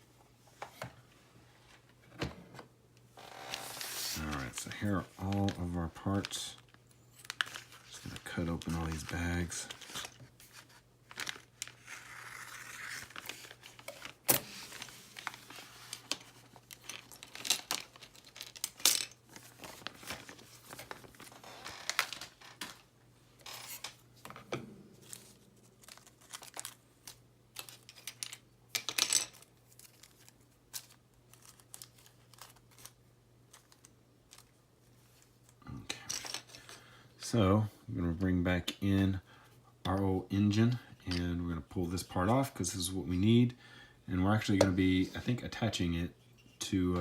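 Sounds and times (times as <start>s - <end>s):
plastic bags tearing and crinkling: 11.1s - 22.8s, 25.0s - 28.2s.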